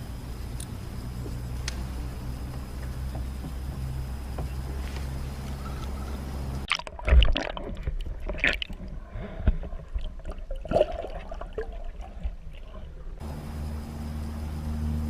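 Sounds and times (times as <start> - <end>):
water splashing and gurgling: 6.6 - 13.2.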